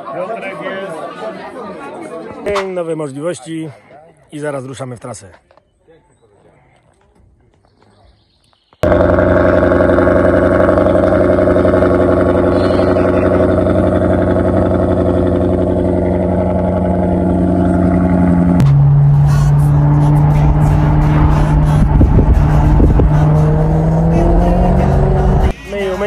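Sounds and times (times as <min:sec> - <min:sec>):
car engine cruising: 0:08.8 - 0:25.6
car engine idling: 0:08.8 - 0:25.6.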